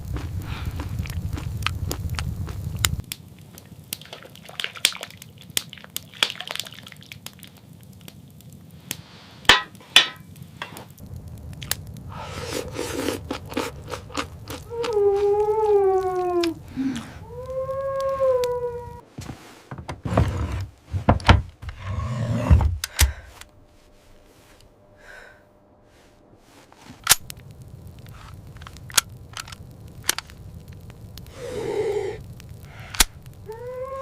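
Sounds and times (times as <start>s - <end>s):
crunching and crackling clicks: 0.0s - 19.0s, 26.7s - 34.0s
long falling howl: 12.0s - 19.0s, 31.2s - 34.0s.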